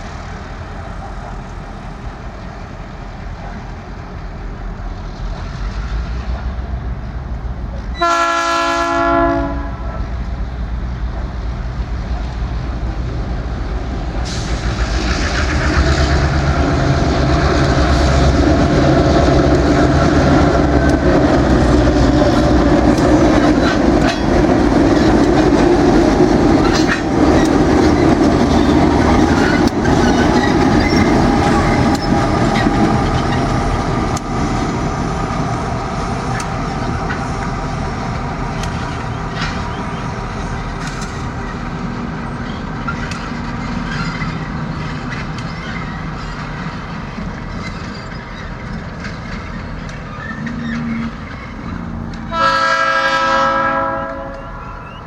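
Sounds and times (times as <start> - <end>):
locomotive horn: 7.9 - 10.1, 51.8 - 55.0
wheels clicking over rail joints: 10.2 - 55.0.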